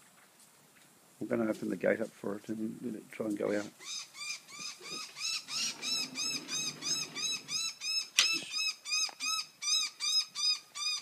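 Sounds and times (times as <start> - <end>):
bird calling repeatedly: 3.8 - 11.0.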